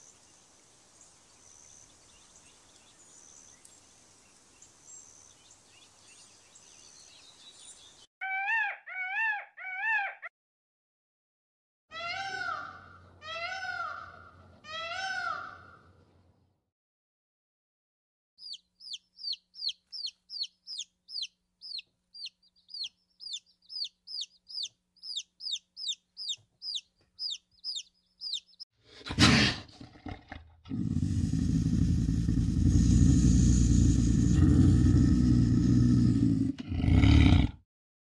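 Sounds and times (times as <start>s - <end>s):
bird peeping calls: 18.4s - 28.6s.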